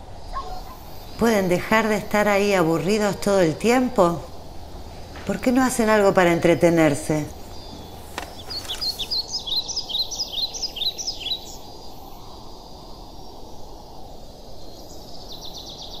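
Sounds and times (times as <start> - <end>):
faint rapid bird trill: 0.0 - 16.0
low outdoor background noise: 0.0 - 16.0
small bird chirping: 0.1 - 3.8, 7.3 - 11.7.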